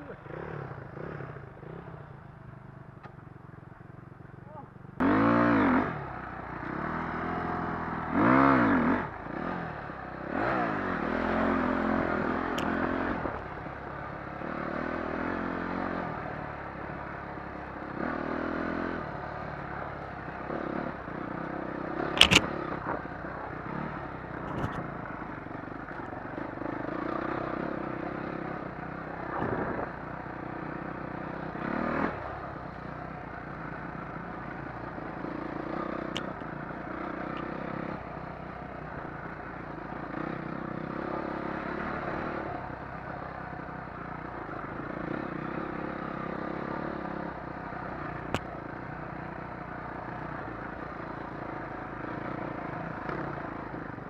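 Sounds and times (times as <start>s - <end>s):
dirt bike engine revving: 0.0s - 2.1s, 5.0s - 25.4s, 26.2s - 42.7s.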